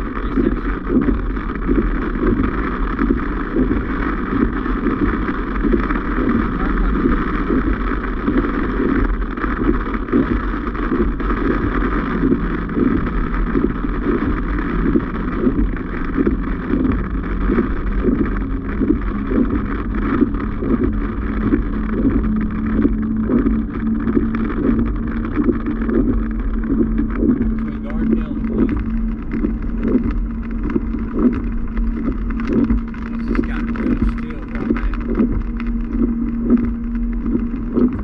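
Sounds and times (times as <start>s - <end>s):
car road and engine rumble: 0.0s - 38.0s
low hum: 0.0s - 38.0s.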